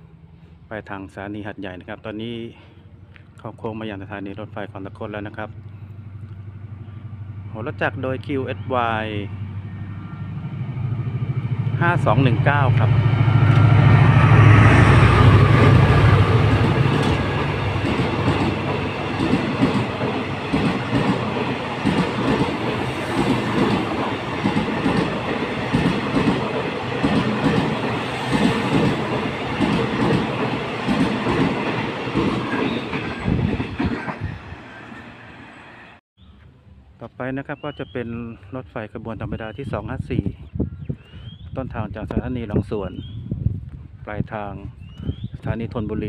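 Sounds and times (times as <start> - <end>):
diesel locomotive engine drone: 0.0 - 1.2, 1.8 - 37.1
train wheels clicking over rail joints: 15.2 - 34.2.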